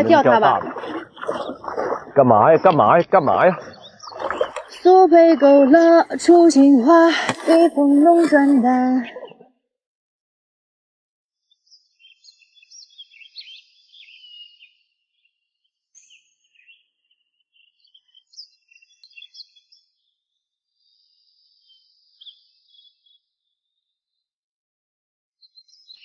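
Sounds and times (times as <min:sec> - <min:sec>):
songbirds chirping and trilling: 0:00.0 - 0:07.0, 0:11.4 - 0:24.2, 0:25.4 - 0:26.0.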